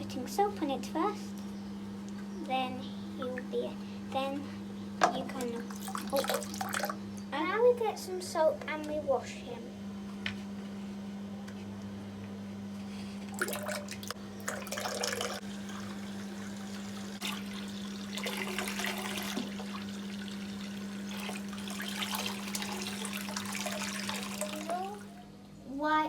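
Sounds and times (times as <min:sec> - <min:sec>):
tap water running and splashing: 0:05.0 - 0:07.0, 0:13.3 - 0:25.2.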